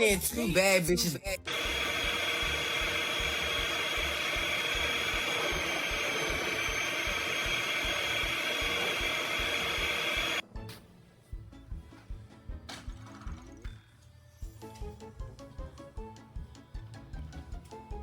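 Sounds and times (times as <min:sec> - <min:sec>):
electric motor blowing air: 0:01.5 - 0:10.4.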